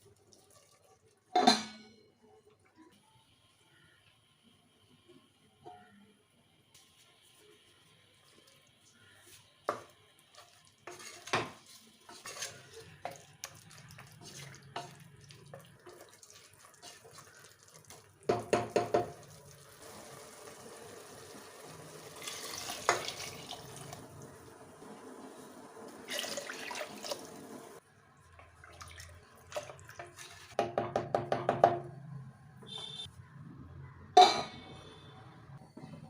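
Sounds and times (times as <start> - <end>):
pots and utensils clinking: 1.3 - 2.2, 9.7 - 19.3, 22.2 - 24.0, 34.2 - 34.7.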